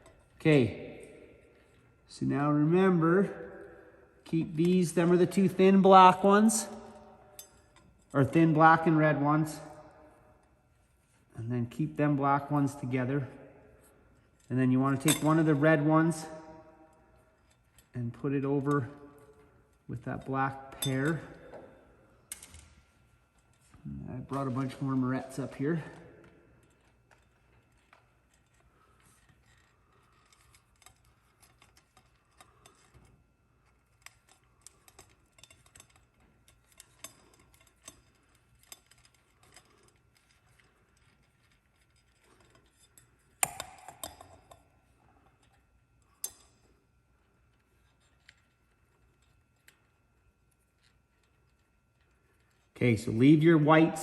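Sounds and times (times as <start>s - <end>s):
clicks and rustles of wires: 16.7s - 52.8s.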